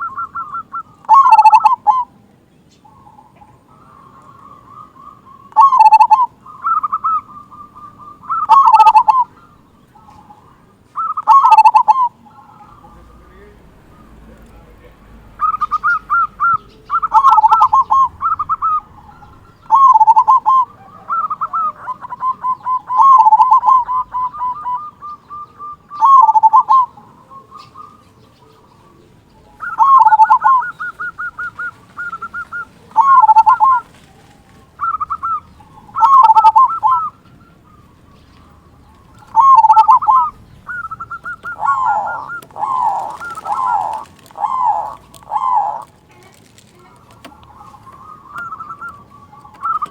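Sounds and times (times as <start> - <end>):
zebra dove cooing: 0.0 - 49.9.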